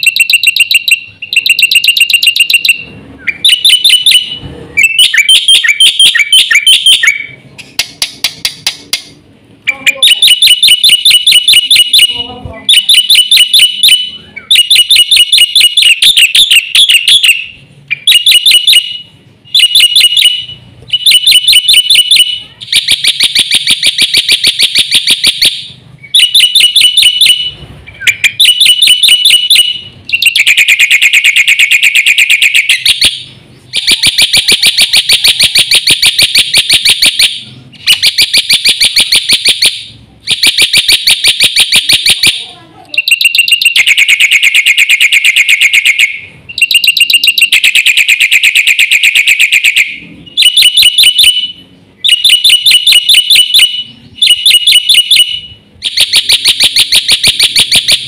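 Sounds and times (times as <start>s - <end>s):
bird rattling chatter song: 28.0s - 33.0s.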